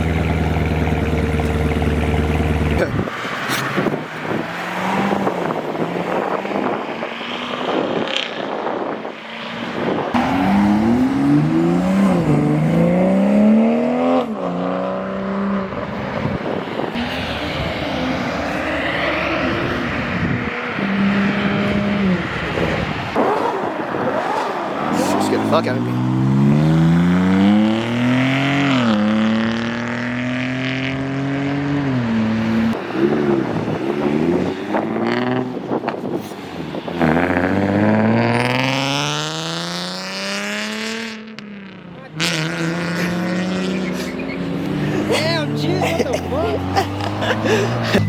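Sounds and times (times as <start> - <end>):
cars accelerating past: 2.8 - 48.0.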